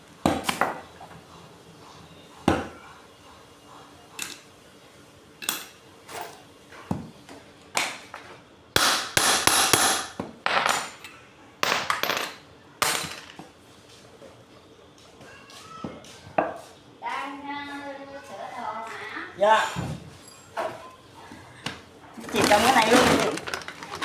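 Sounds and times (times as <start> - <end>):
hammer striking metal: 8.8 - 10.2.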